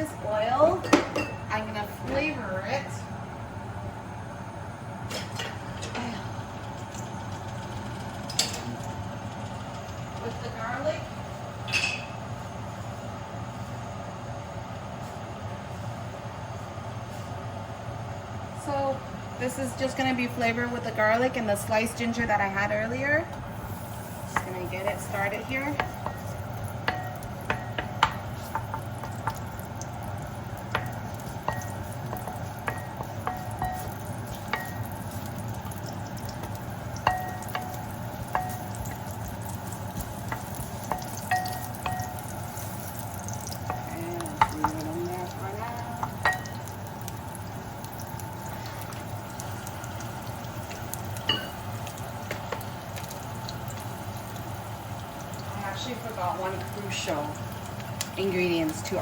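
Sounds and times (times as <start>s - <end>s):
metal utensil clinking on pot: 11.7s - 12.2s, 40.3s - 42.3s, 43.4s - 46.8s, 51.2s - 51.7s
garlic sizzling in hot oil: 23.4s - 59.0s.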